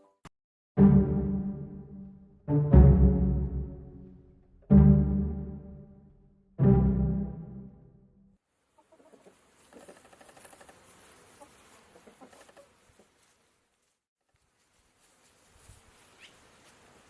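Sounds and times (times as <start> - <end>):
music hit: 0.8 - 8.3
clucking animal calls: 8.7 - 13.2.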